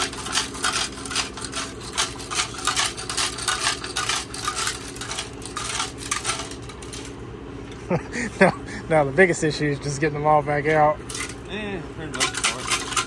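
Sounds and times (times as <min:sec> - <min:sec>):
rocks rattling inside a metal tank: 0:00.0 - 0:07.2, 0:10.7 - 0:13.0.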